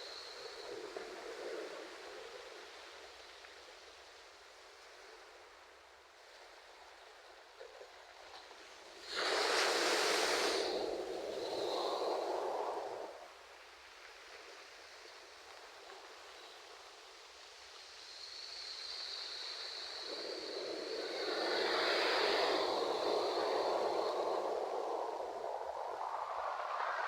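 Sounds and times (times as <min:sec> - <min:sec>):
ocean waves breaking on shore: 0:09.1 - 0:13.2, 0:20.0 - 0:27.0.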